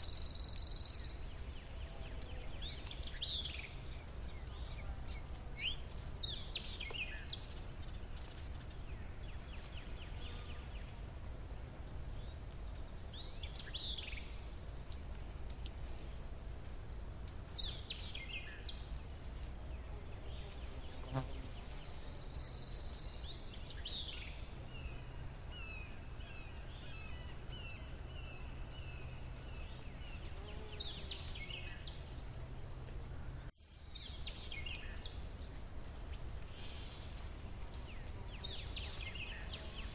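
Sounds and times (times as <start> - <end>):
bird chirping: 0.0 - 10.8.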